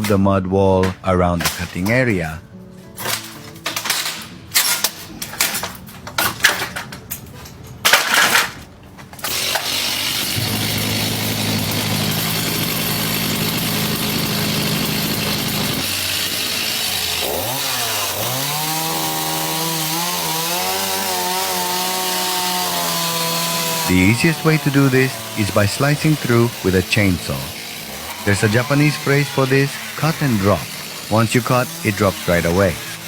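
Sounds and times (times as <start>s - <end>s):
sharp knocks and cracks: 0.8s - 2.1s, 2.8s - 9.7s
chainsaw running and cutting: 9.2s - 33.0s.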